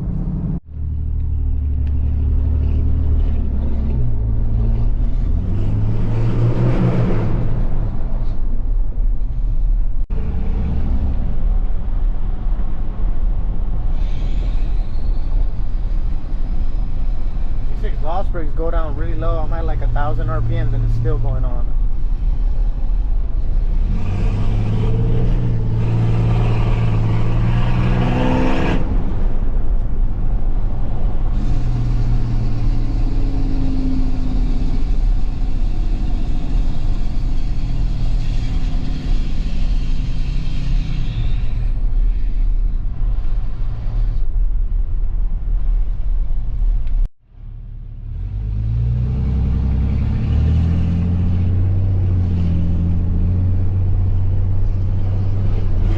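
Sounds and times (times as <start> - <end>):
diesel engine revving while driving: 1.8 - 8.0, 23.6 - 29.7, 31.2 - 41.8, 48.0 - 55.9.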